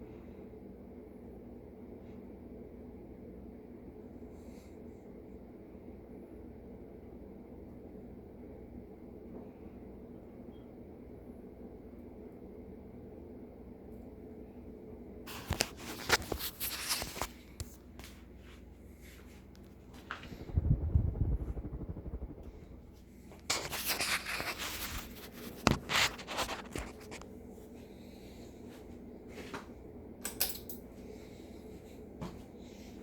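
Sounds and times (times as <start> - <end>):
ceiling fan motor humming: 20.2 - 24.0.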